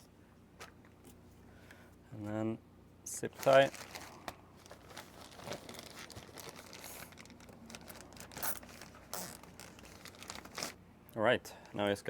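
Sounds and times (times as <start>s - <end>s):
plastic bag crinkling: 3.3s - 10.8s.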